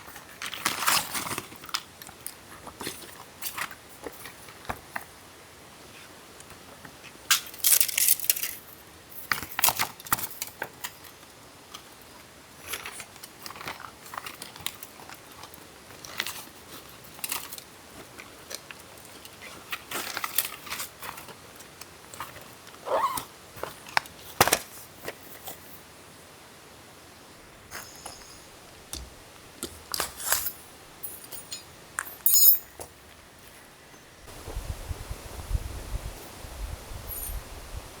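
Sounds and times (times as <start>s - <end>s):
rustling and crinkling gear: 6.8s - 25.9s
small clinks and rattles: 30.0s - 32.9s.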